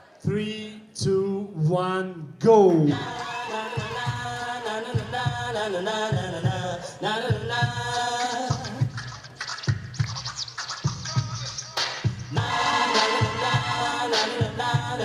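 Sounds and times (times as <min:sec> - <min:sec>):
music with steady beat: 0:02.8 - 0:15.0
record scratching: 0:08.0 - 0:15.0
pitched vocal samples: 0:10.9 - 0:15.0.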